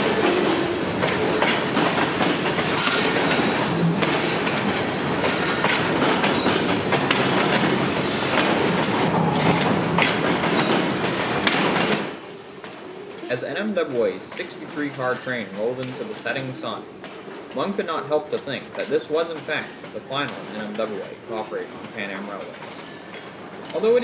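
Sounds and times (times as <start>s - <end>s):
faint high wheel squeal: 0.0s - 1.6s, 15.0s - 16.0s, 22.7s - 23.9s
train wheels clicking over rail joints: 0.0s - 24.0s.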